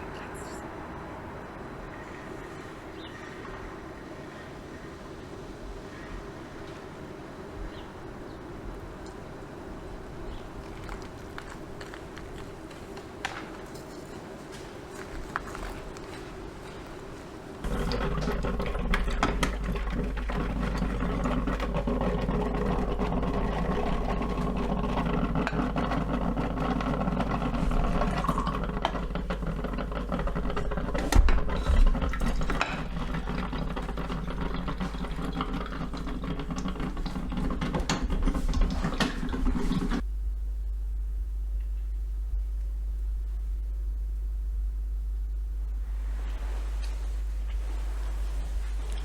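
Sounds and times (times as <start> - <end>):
machine whirring: 17.6 - 40.1
low hum: 17.6 - 49.0.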